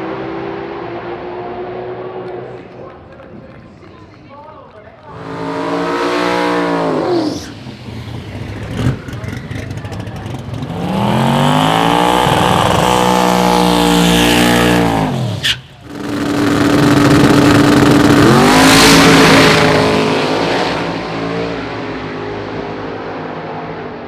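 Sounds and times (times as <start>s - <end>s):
drag car engine revving hard: 5.1s - 21.7s
sharp crack: 14.4s - 20.2s.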